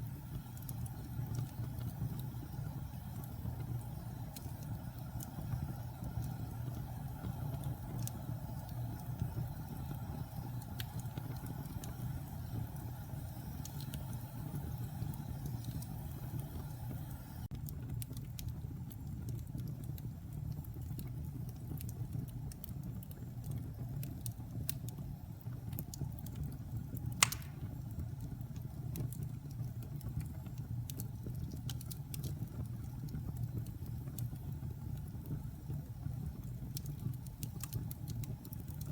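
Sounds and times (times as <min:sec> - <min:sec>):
fire crackles: 0:00.0 - 0:38.9
fire rumbling in fireplace: 0:00.0 - 0:38.9
sharp pop of fire: 0:27.2 - 0:27.8.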